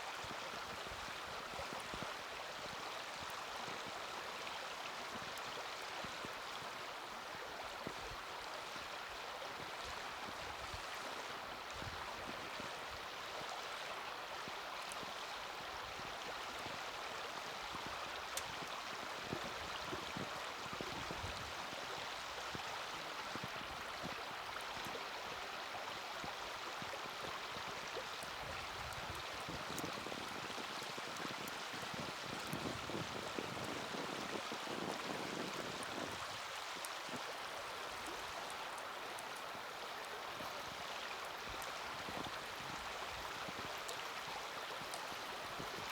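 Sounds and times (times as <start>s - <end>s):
fire crackles and pops: 28.2s - 45.9s.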